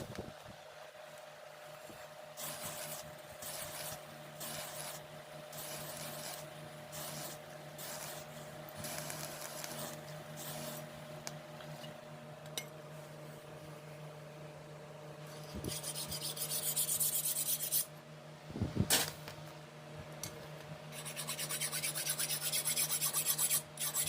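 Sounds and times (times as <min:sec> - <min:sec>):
file rasping back and forth: 0:15.6 - 0:17.9, 0:20.9 - 0:24.0.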